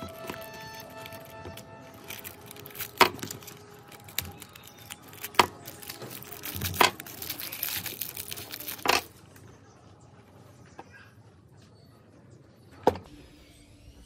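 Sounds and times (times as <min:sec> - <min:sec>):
scraping and rustling: 0:00.0 - 0:09.2.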